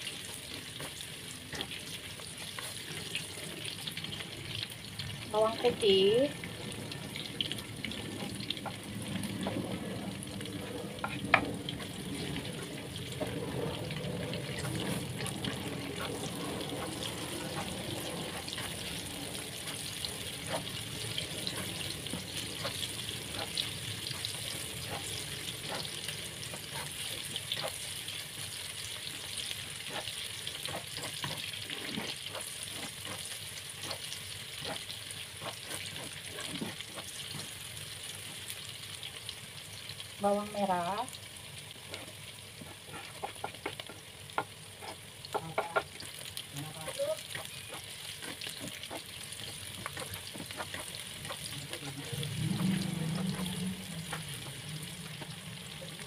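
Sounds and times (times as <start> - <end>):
onion sizzling in hot oil: 0.0 - 56.0
spatula scraping pan: 8.0 - 38.5, 41.8 - 55.4.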